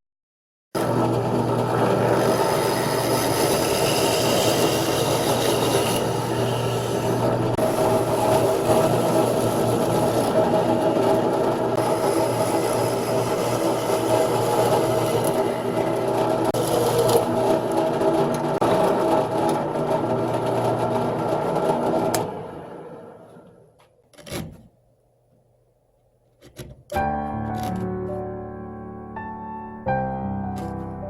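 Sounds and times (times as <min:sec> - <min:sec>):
woodworking power tool motor: 0:00.8 - 0:24.7.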